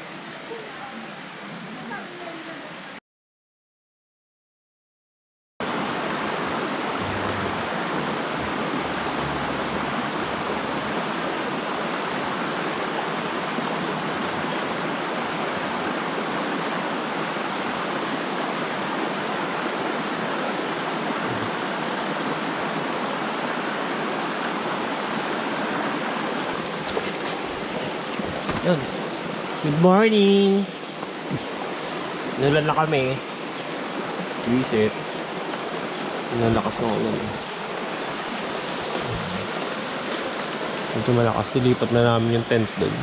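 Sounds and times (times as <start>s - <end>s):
heavy rain falling: 5.6s - 23.4s, 24.2s - 43.0s.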